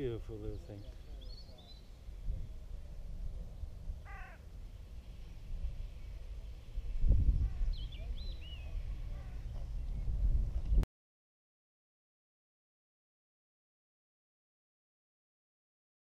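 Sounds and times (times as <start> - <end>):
birds calling: 0.0 - 2.8, 3.5 - 10.8.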